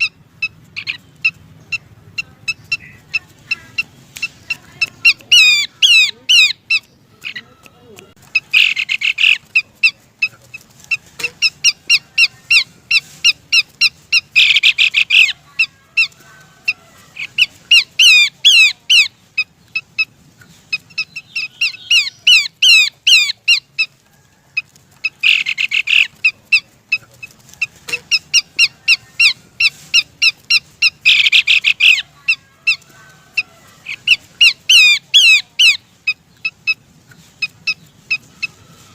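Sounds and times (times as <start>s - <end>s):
bird whistled calls: 30.8s - 32.0s.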